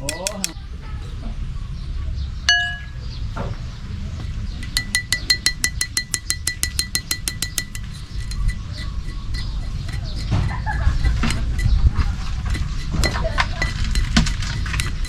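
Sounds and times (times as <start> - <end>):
sharp chirping clicks: 0.0 - 0.6
bright ringing clink: 2.5 - 3.0.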